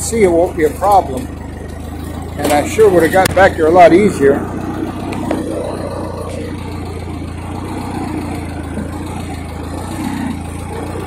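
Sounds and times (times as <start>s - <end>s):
tractor engine running steadily: 0.0s - 11.0s.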